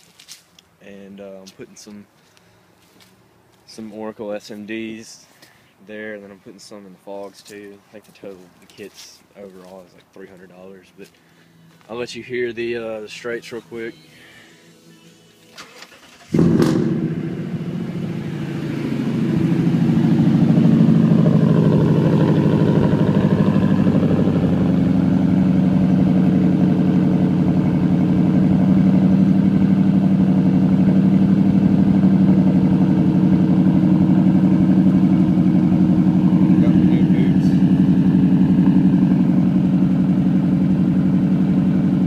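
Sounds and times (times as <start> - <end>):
truck engine starting and idling: 13.0 - 42.0.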